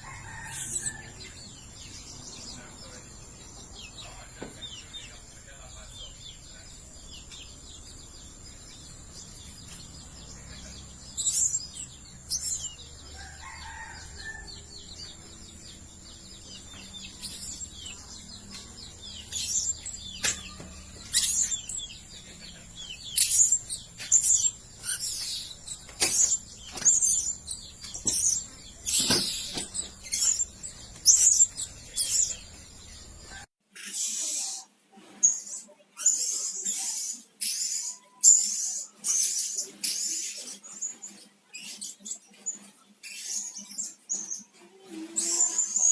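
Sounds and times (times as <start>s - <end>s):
parrots chirping: 0.0s - 33.4s.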